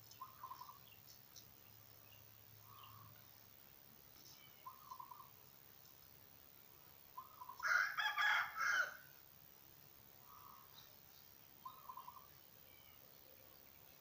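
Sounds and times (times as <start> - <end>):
soft low bird call: 0.1 - 0.8, 4.2 - 5.3
rooster crowing: 7.6 - 9.1.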